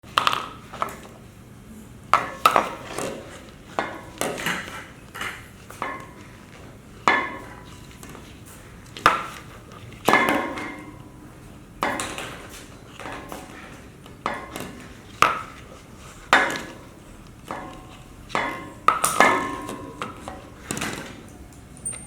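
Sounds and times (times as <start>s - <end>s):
toy bowling pins clattering: 11.8s - 22.0s.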